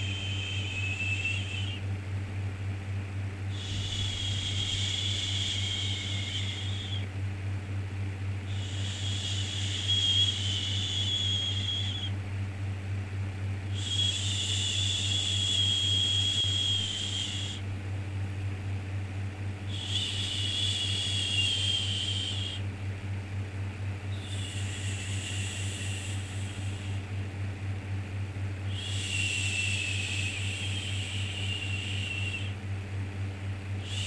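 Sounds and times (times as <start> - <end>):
low background hum: 0.0 - 34.0.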